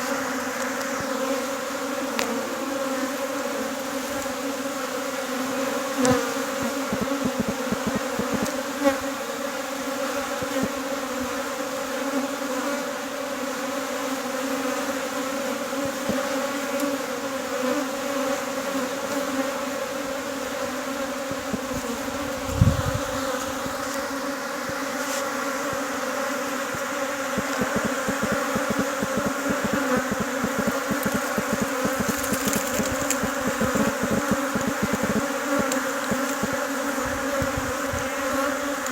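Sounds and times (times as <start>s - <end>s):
honeybees buzzing: 0.0s - 38.9s
dull low bumps: 6.9s - 8.5s, 27.4s - 36.6s.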